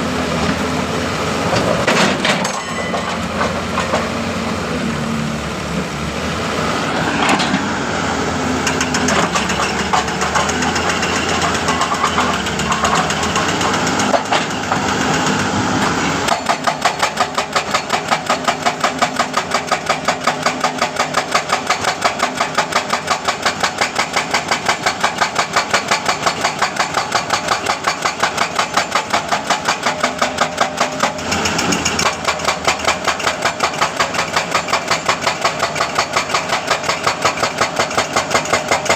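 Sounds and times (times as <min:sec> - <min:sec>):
excavator engine running: 0:00.0 - 0:38.9
hydraulic breaker hammering: 0:16.3 - 0:38.9.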